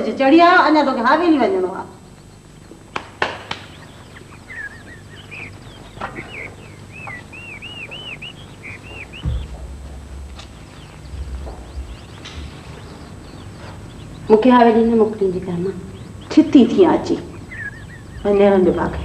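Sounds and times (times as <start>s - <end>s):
birds chirping: 0.0s - 19.0s
dull thump: 8.8s - 13.2s.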